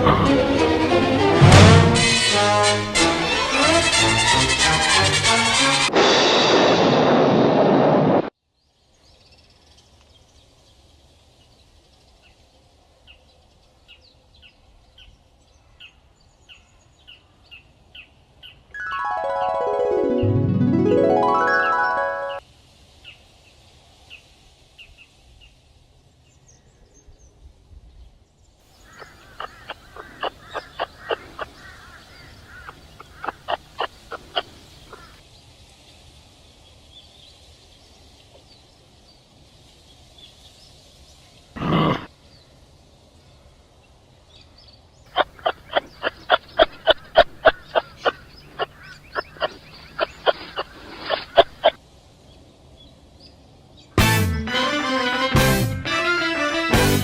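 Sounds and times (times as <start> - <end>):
animal clucking: 28.8 - 35.2, 45.1 - 51.8
loud long animal call: 28.8 - 35.2, 41.6 - 42.1.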